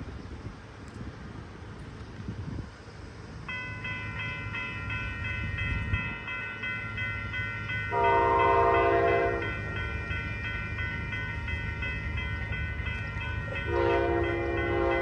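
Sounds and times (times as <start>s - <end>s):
low rumble of passing train: 0.0s - 15.0s
locomotive horn blast: 7.9s - 9.6s, 13.6s - 15.0s.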